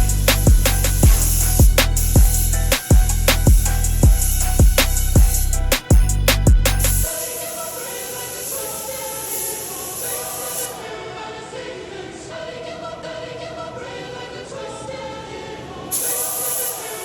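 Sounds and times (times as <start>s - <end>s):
background music with singing: 0.0s - 17.0s
steady high hiss: 0.1s - 11.2s, 15.6s - 17.0s.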